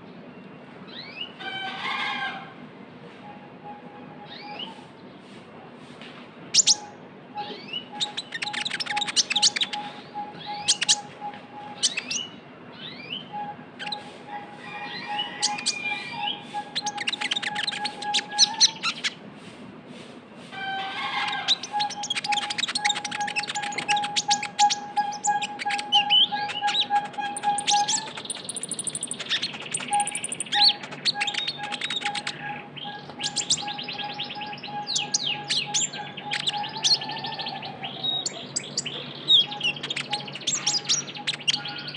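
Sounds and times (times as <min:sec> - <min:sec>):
bird singing chattering trill: 0:06.6 - 0:14.1, 0:14.8 - 0:19.2, 0:21.3 - 0:41.9
steady whistling tone: 0:21.7 - 0:36.7.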